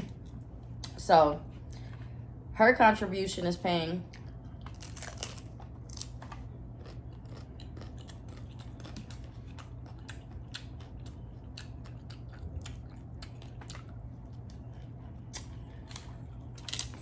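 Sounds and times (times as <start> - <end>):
steady low hum: 0.0 - 17.0
crunchy taco shell chewing: 4.1 - 17.0.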